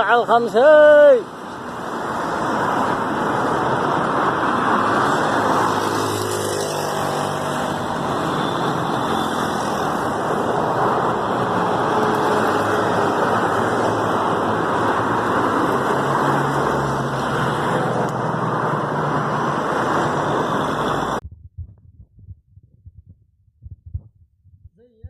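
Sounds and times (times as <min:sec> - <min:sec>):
passing car engines: 0:01.2 - 0:21.2
tyres on wet asphalt: 0:01.2 - 0:21.2.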